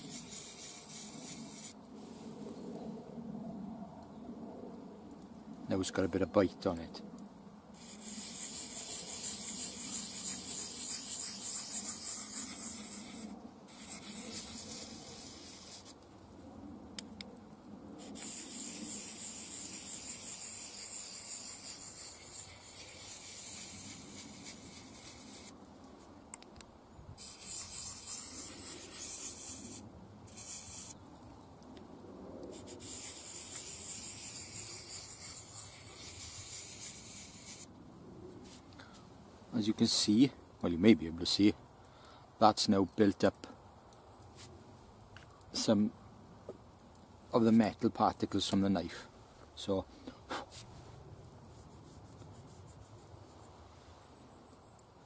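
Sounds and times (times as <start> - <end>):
knife scraping on sharpening stone: 18.1 - 25.5.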